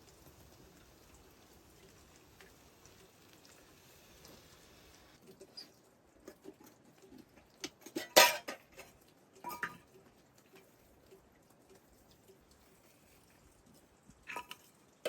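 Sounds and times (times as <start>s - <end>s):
dishes and utensils clicking: 7.6s - 9.9s.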